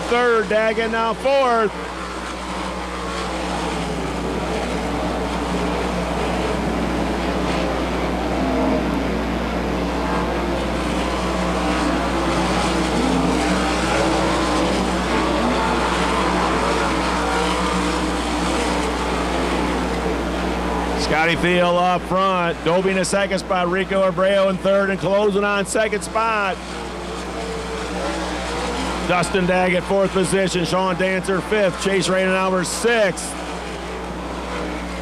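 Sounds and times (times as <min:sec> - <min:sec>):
sprint car engines racing: 0:00.0 - 0:35.0.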